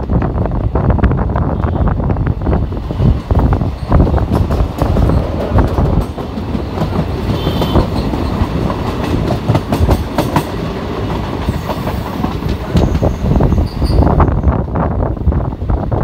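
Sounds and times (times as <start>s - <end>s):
train rumbling on track: 0.0s - 16.0s
wheels clacking over rail joints: 2.8s - 14.0s.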